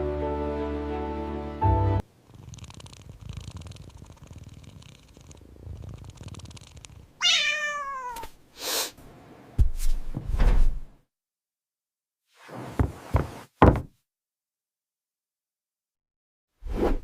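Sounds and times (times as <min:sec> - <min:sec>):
cat purring: 0:02.0 - 0:07.6
cat meow falling in pitch: 0:07.2 - 0:08.3.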